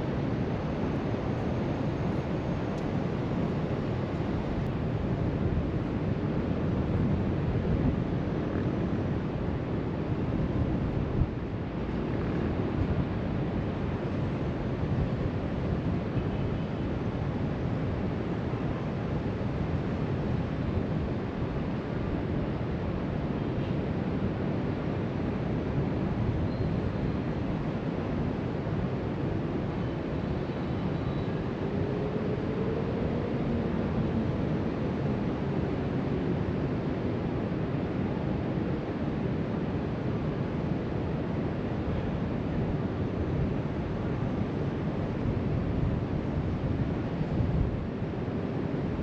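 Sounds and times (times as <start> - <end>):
wind rumbling on microphone: 0.0 - 49.0.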